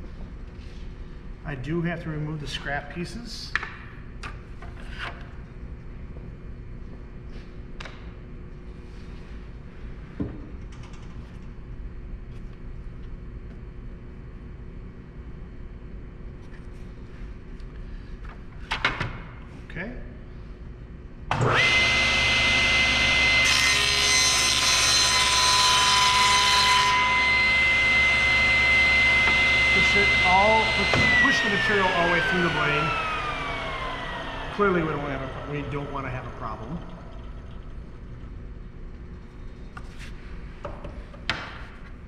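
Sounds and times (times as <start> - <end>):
steady low hum: 0.0 - 21.4, 27.1 - 42.0
table saw whining: 21.3 - 37.8.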